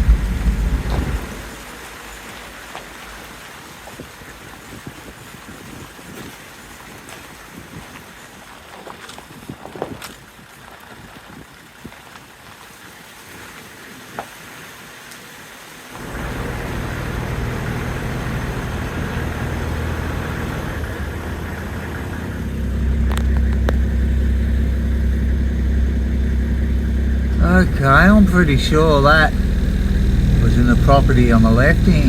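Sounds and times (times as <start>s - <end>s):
vehicle engine running: 0.0s - 1.6s, 16.0s - 32.0s.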